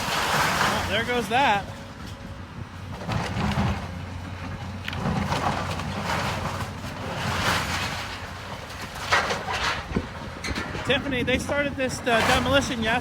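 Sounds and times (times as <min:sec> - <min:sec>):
debris crashing and rattling: 0:00.0 - 0:01.8, 0:04.8 - 0:13.0.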